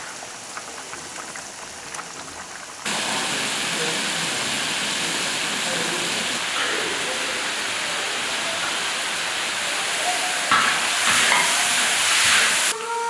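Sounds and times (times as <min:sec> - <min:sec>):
food sizzling in hot oil: 0:02.7 - 0:12.8.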